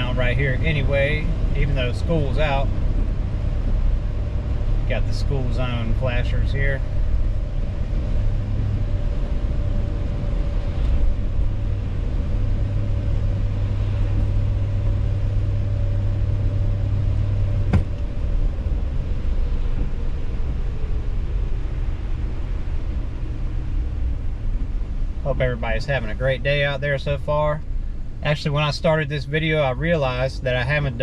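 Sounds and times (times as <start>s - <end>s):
car engine and tyre rumble: 0.0s - 31.0s.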